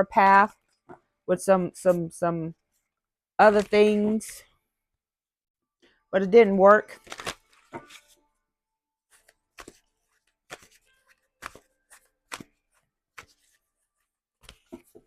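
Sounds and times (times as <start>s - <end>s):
cards being shuffled: 3.5s - 4.0s, 6.9s - 8.2s, 9.1s - 15.0s.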